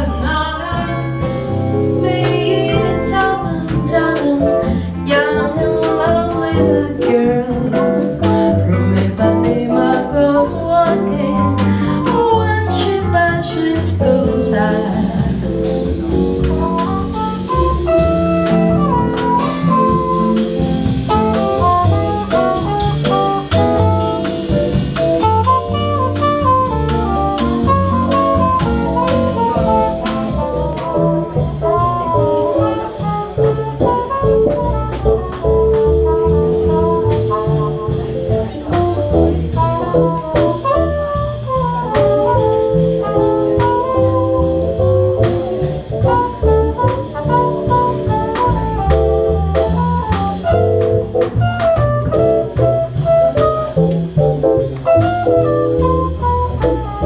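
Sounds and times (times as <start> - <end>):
swing band playing jazz: 0.0 - 57.0.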